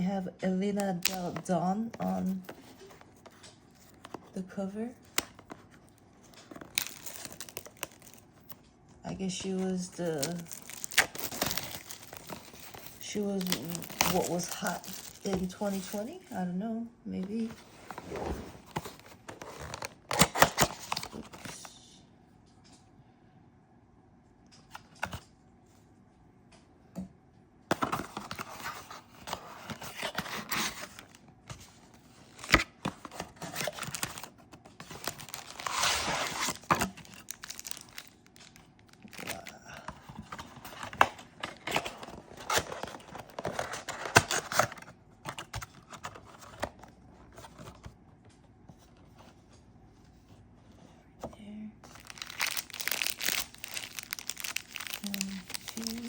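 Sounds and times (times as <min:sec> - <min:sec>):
plastic wrapping tearing and crinkling: 0:05.1 - 0:08.6, 0:09.9 - 0:16.1, 0:32.2 - 0:44.9, 0:51.8 - 0:56.0.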